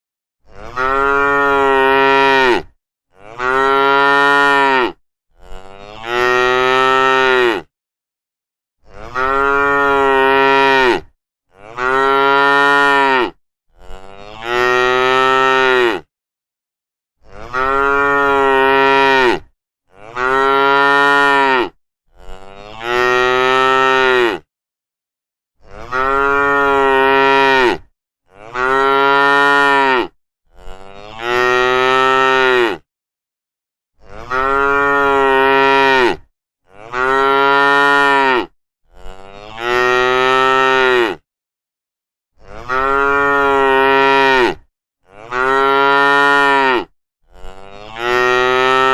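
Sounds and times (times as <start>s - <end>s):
cows mooing: 0.5s - 7.7s, 8.9s - 16.1s, 17.3s - 24.5s, 25.7s - 32.8s, 34.0s - 41.2s, 42.4s - 48.9s.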